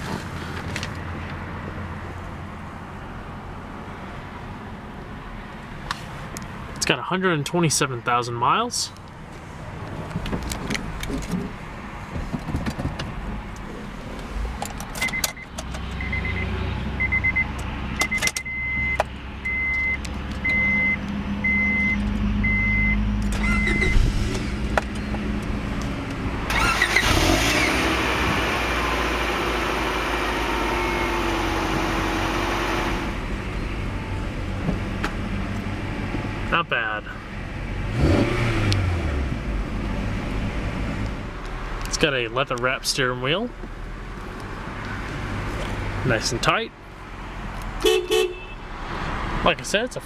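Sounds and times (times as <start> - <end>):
car engine humming: 18.8 - 36.4.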